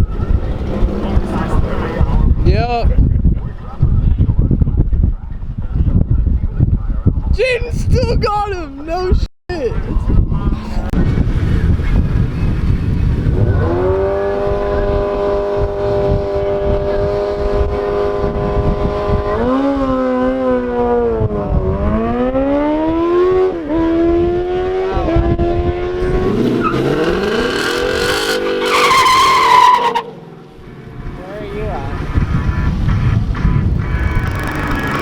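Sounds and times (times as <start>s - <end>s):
race car engine revving: 0.2s - 2.2s, 10.5s - 35.0s
second engine rising in pitch: 21.6s - 35.0s.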